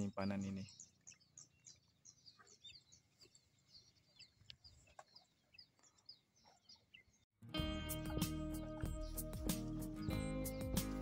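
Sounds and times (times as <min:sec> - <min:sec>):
birds chirping rapidly: 0:00.0 - 0:07.3, 0:07.9 - 0:11.0.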